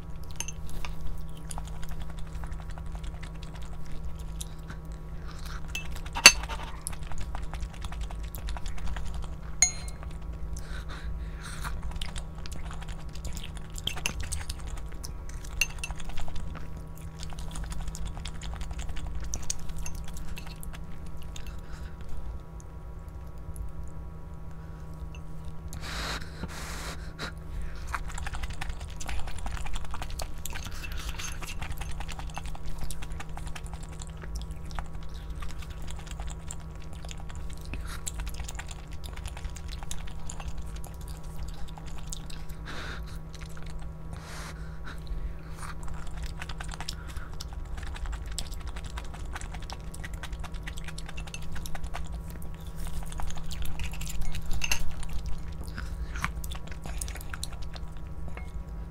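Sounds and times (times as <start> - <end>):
person chewing food: 0.0 - 58.9
steady low hum: 0.0 - 58.9
small clicks and clinks: 9.6 - 10.2.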